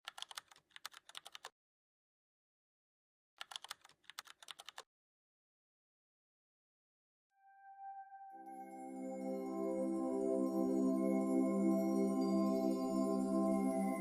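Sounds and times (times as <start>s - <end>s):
keyboard typing: 0.0s - 1.5s, 3.4s - 4.8s.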